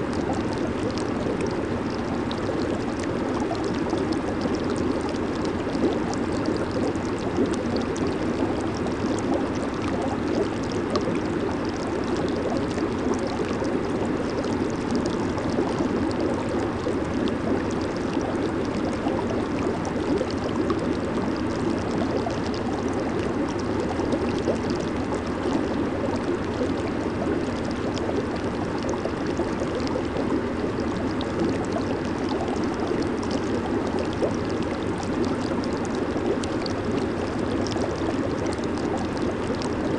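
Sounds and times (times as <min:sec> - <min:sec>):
hot tub jets bubbling: 0:00.0 - 0:39.9.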